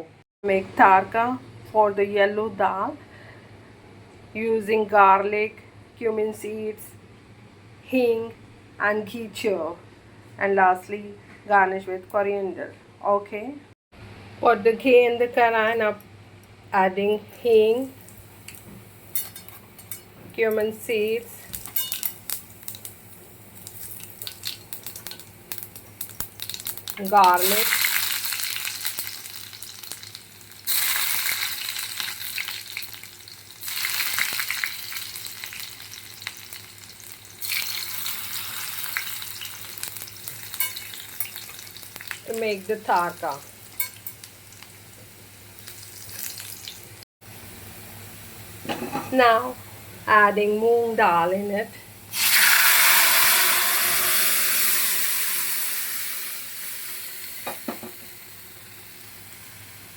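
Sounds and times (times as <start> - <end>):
spices sizzling in hot fat: 17.0 - 59.9.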